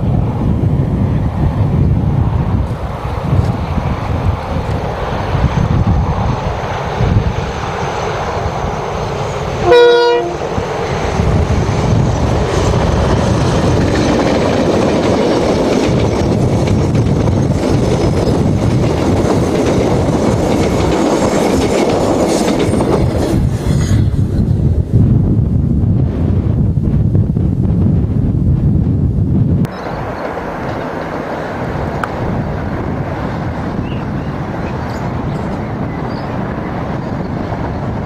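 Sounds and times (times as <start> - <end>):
locomotives and wheels passing: 0.0 - 38.0
train horn blast: 9.6 - 10.6.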